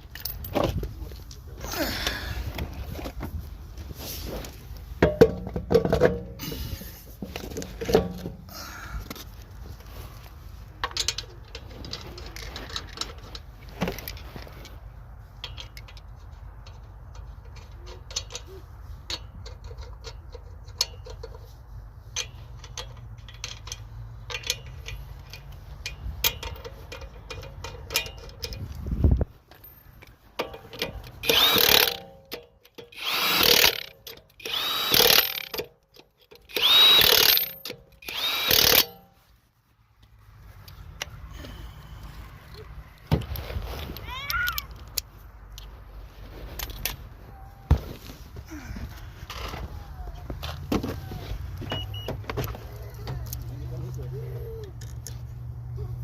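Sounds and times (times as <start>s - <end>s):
impact wrench bursts: 30.8s - 35.7s, 36.4s - 39.1s.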